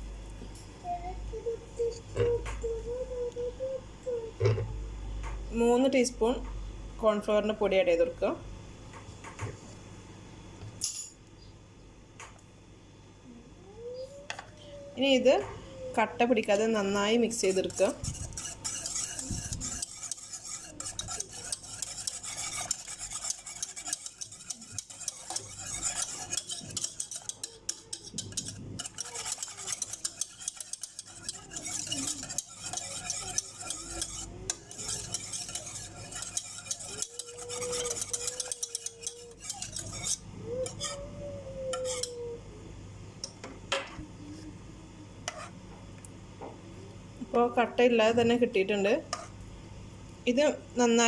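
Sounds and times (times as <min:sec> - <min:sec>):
utensil scraping a saucepan: 0:16.5 - 0:41.0, 0:41.7 - 0:42.2, 0:45.3 - 0:45.5.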